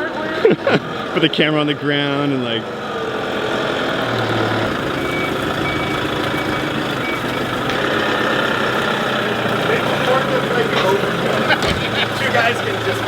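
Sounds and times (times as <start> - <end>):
vehicle engine running: 0.0 - 13.0
high warning beeps: 4.7 - 8.6.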